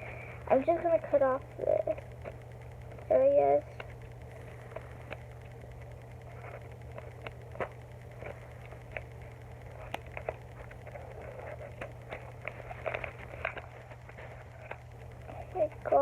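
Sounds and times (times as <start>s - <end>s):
steady low hum: 0.0s - 16.0s
paper squishy clicks and crinkles: 6.2s - 16.0s.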